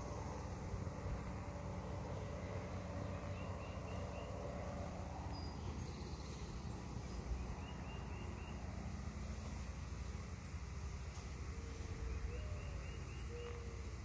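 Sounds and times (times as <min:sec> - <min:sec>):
small bird chirping: 0:05.3 - 0:08.7.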